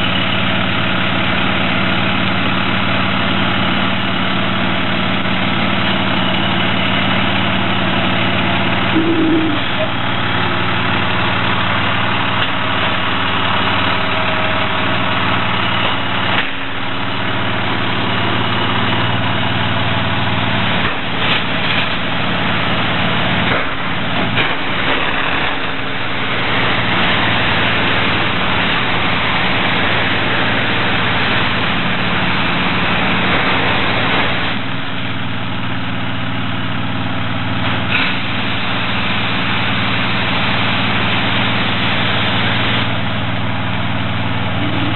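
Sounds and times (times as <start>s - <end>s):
heavy engine idling: 0.0s - 44.9s.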